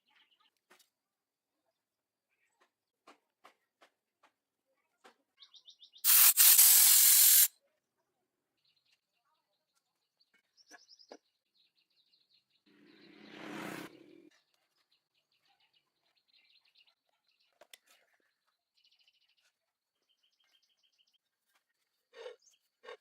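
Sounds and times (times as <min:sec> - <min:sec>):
loud steady hiss: 0:06.1 - 0:07.5.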